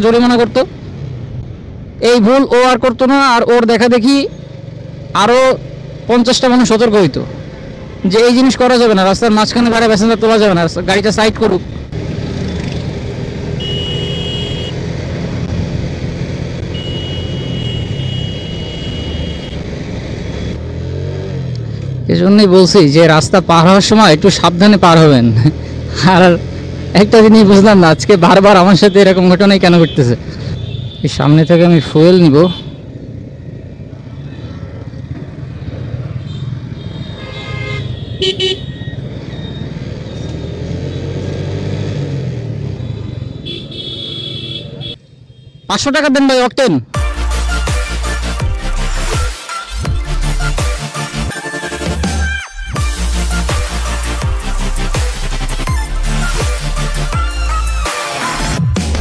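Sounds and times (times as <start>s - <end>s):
road and traffic noise: 0.0s - 59.0s
vehicle horn toots: 13.6s - 14.8s, 16.6s - 19.6s, 36.2s - 39.0s, 42.8s - 45.7s.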